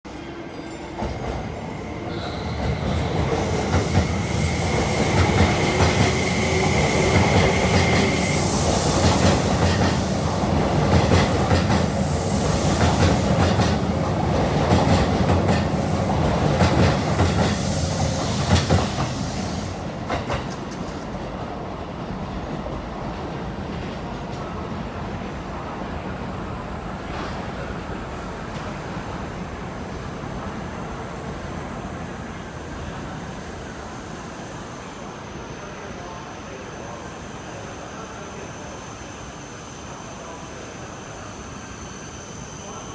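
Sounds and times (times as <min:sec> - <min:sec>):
electric train passing: 0:00.1 - 0:27.0.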